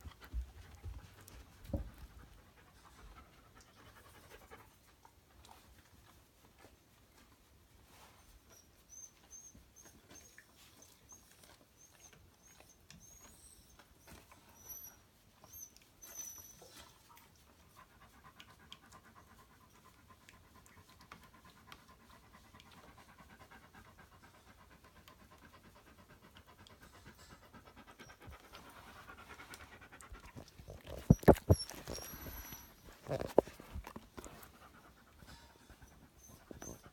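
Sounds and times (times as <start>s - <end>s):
dog panting rapidly: 0.0s - 6.8s, 17.2s - 36.9s.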